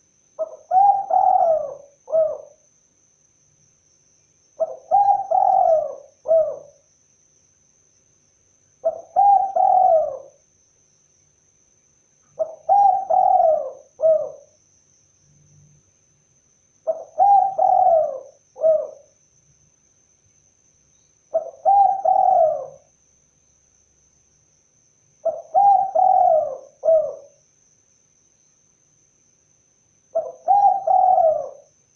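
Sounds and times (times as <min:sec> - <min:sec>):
dove cooing: 0:00.4 - 0:02.6, 0:04.6 - 0:06.8, 0:08.8 - 0:10.4, 0:12.4 - 0:14.6, 0:16.9 - 0:19.1, 0:21.3 - 0:22.9, 0:25.2 - 0:27.4, 0:30.1 - 0:31.7.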